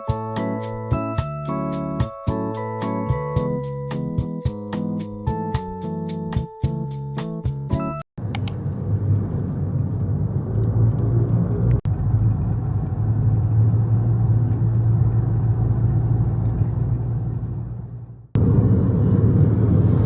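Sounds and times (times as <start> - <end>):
low rumble of road noise: 8.2 - 20.0.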